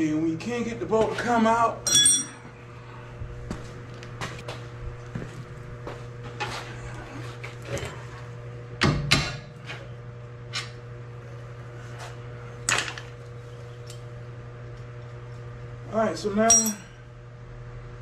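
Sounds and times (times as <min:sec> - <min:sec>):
steady low hum: 0:00.0 - 0:18.0
metallic tool knocks and clanks: 0:16.5 - 0:16.9.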